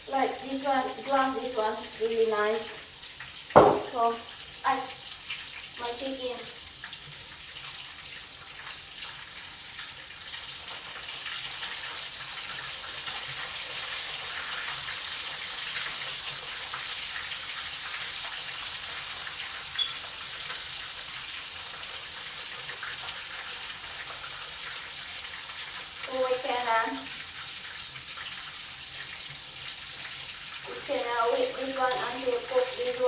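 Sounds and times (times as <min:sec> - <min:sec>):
chicken frying in hot oil: 0:00.0 - 0:33.0
sharp oil pop: 0:03.5 - 0:04.0.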